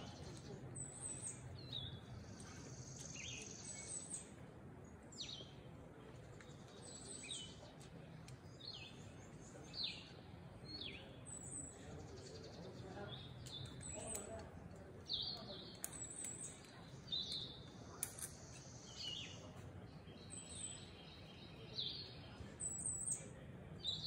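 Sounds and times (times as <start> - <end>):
songbird chirps: 0.0 - 24.0.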